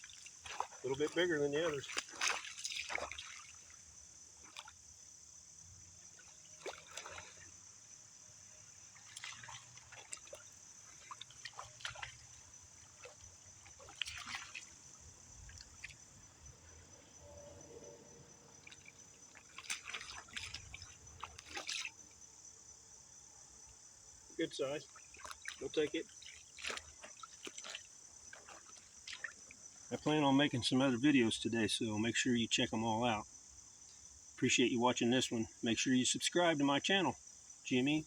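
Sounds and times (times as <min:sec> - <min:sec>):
water splashing and dribbling: 0:00.0 - 0:05.0, 0:05.7 - 0:16.9, 0:17.6 - 0:22.4, 0:24.3 - 0:31.3
high insect buzz: 0:00.0 - 0:30.1.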